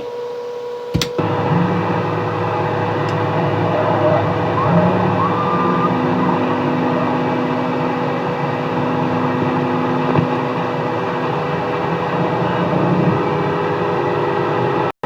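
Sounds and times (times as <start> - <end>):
radio static hiss: 1.2 - 9.4
whistling tones: 2.9 - 8.4.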